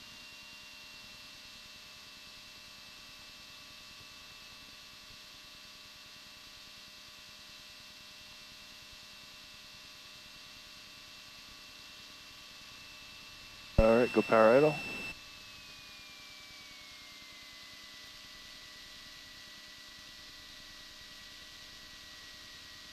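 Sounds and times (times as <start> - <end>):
faint steady hiss: 13.8 - 15.1
thin constant hum tones: 13.8 - 15.1.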